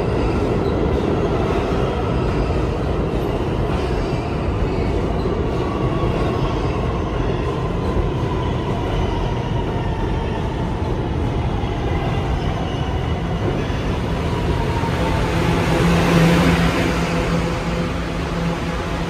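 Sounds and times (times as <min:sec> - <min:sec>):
subway train rumbling: 0:00.0 - 0:19.0.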